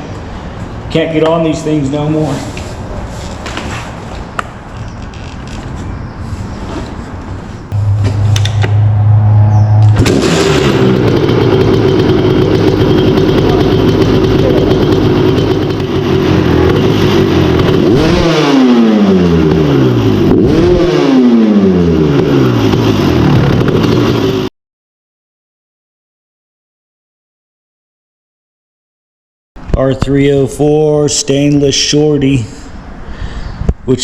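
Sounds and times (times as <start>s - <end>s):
dirt bike engine revving: 7.7s - 24.5s.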